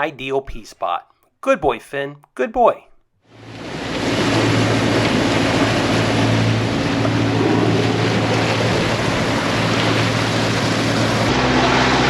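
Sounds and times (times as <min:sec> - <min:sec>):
boat motor humming: 0:03.3 - 0:12.0.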